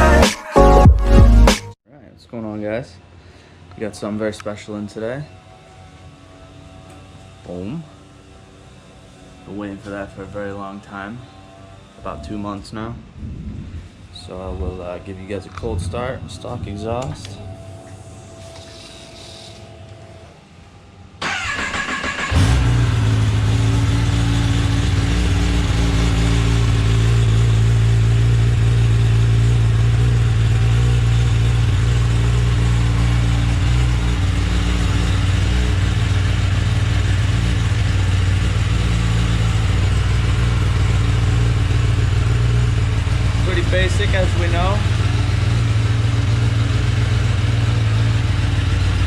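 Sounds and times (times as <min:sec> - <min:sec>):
starter motor cranking: 0:21.2 - 0:23.4
motorcycle engine idling: 0:21.2 - 0:49.0.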